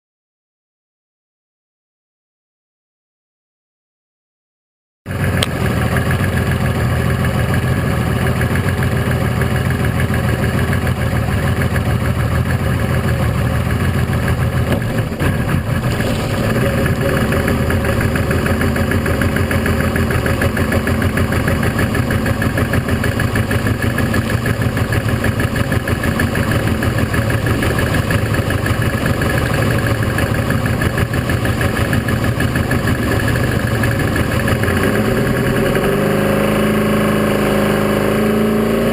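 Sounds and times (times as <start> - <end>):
boat engine running: 5.1 - 38.9
wind: 5.1 - 38.9
water noise: 15.2 - 22.3.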